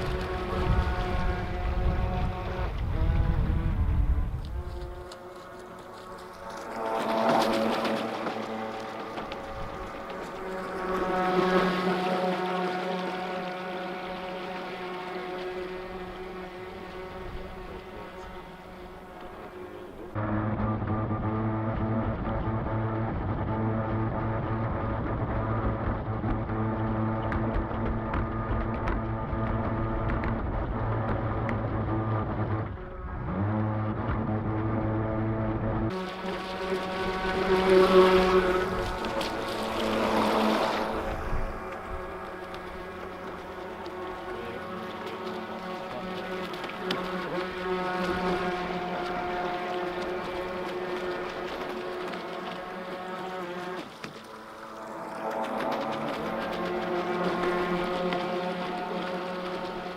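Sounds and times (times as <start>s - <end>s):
electric motor whine: 0.0s - 59.9s
water noise: 0.0s - 59.9s.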